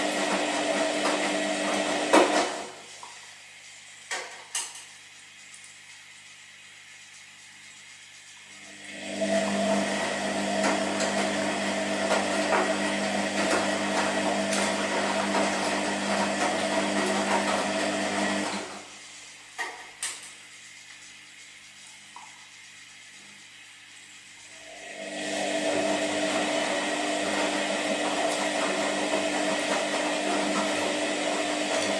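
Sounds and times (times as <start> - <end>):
washing machine drum turning: 9.1 - 18.8, 25.2 - 31.9.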